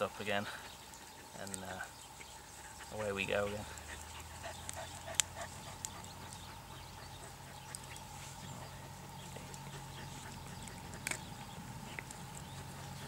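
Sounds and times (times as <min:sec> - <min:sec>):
wood fire crackling: 0:00.0 - 0:06.6.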